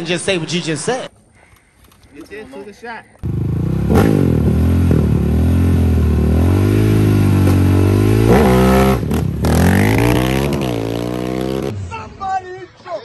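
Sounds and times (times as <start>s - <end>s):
atv engine revving: 3.2s - 11.9s.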